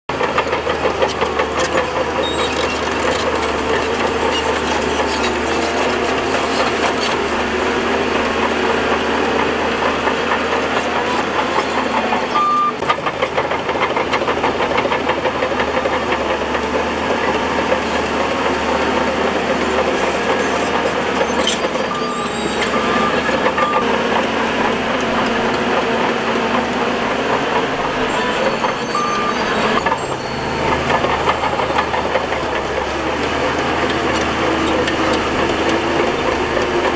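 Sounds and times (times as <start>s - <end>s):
bulldozer engine running: 0.1s - 36.9s
short high beeps: 28.3s - 31.7s.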